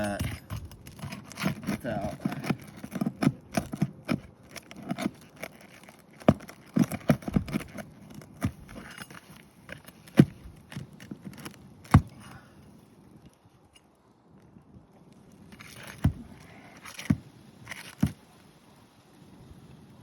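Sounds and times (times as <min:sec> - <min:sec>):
pry tool scraping under shingles: 0:00.0 - 0:12.4, 0:15.5 - 0:18.3.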